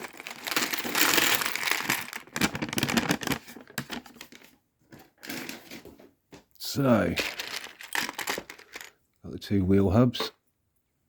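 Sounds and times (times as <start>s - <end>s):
plastic pieces rattling and clicking: 0.0s - 4.0s, 7.1s - 9.0s
plastic packaging crinkling: 0.0s - 5.9s, 7.1s - 9.0s.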